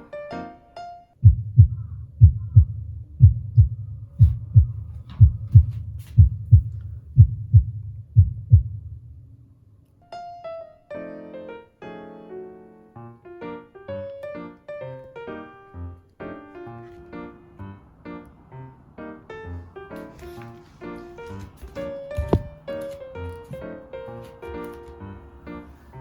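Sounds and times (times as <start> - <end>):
piano background music: 0.0 - 6.6, 10.0 - 26.0
heartbeat thumps: 1.2 - 9.3, 22.2 - 22.6.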